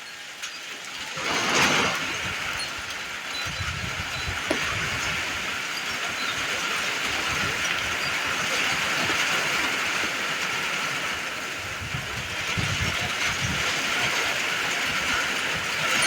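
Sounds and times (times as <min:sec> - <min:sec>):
steady rain falling: 0:00.0 - 0:16.0
wind gusting against microphone: 0:01.0 - 0:16.0.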